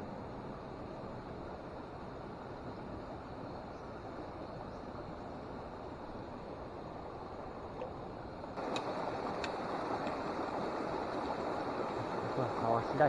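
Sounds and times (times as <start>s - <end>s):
stream water rushing: 5.3s - 13.0s.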